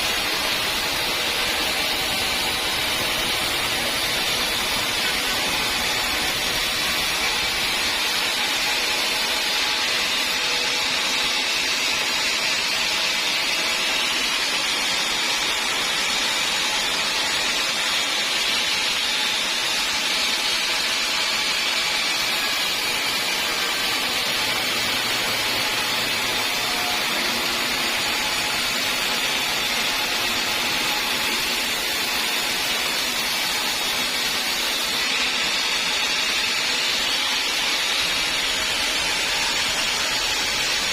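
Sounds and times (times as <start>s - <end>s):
sawmill saw hissing: 12.0s - 40.9s.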